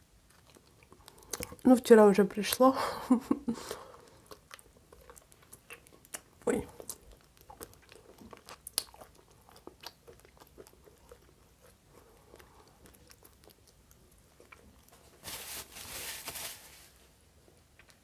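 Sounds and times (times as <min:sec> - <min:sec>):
chewing: 0:00.2 - 0:01.7, 0:03.6 - 0:15.1
wet mouth clicks: 0:04.3 - 0:11.3.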